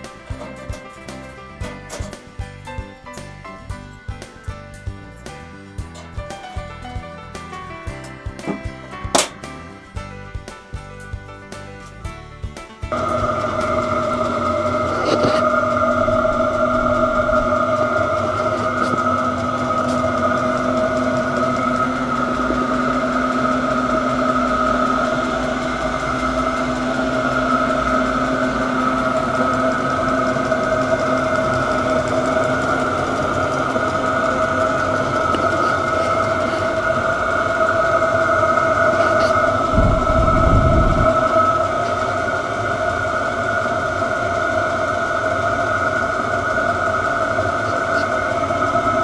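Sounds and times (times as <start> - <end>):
blower fan whine: 0.0 - 49.0
constant hum: 0.0 - 49.0
low combustion rumble: 0.0 - 49.0.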